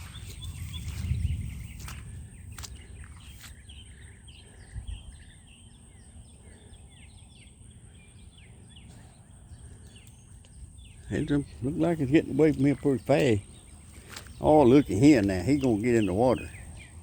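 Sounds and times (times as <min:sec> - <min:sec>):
low microphone rumble: 0:00.0 - 0:06.1
birds chirping: 0:00.0 - 0:17.0.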